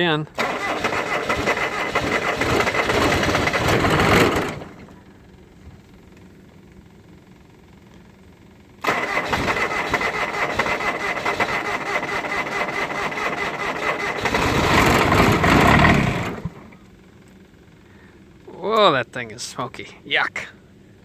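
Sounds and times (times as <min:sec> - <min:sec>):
starter cranking diesel engine: 0:00.0 - 0:18.6.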